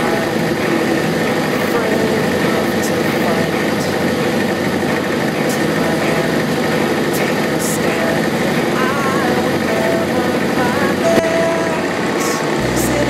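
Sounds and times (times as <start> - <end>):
light aircraft engine drone: 0.0 - 13.0.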